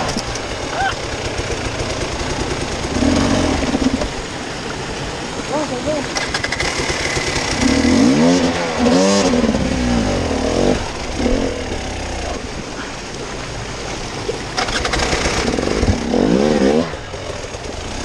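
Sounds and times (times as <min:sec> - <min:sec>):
off-road vehicle engine revving: 0:00.0 - 0:12.9, 0:14.5 - 0:18.0.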